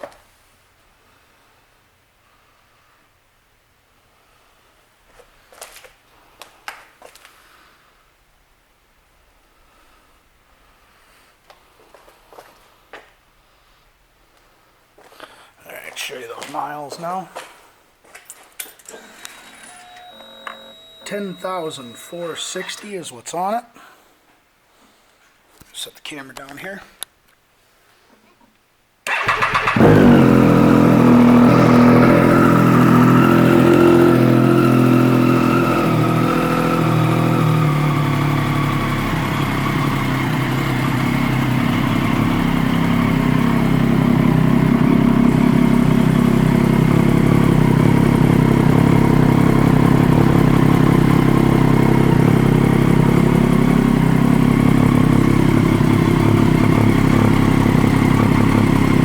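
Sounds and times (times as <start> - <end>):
motorcycle engine starting and idling: 29.1 - 59.0.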